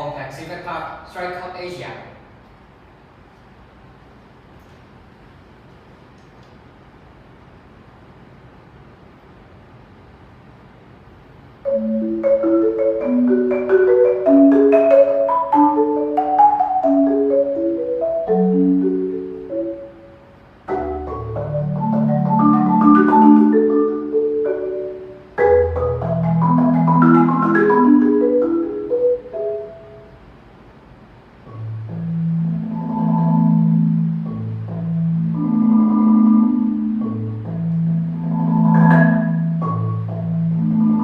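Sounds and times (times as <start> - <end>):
solo marimba: 11.6 - 30.2, 31.4 - 41.0.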